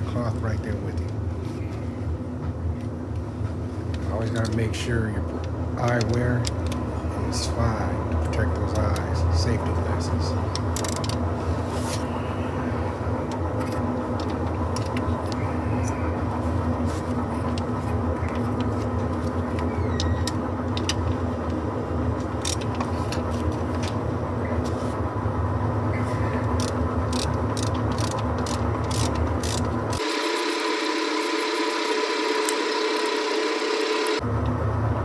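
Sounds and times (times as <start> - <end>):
low mechanical hum: 0.0 - 35.0
thin higher hum: 30.0 - 34.2.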